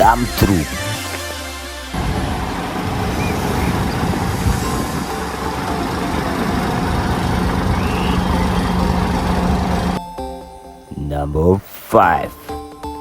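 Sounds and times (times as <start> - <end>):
truck engine rumbling: 0.0 - 10.0.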